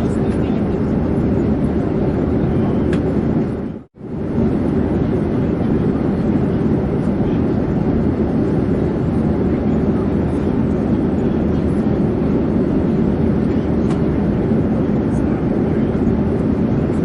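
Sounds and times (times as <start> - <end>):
airplane drone in flight: 0.0 - 17.0.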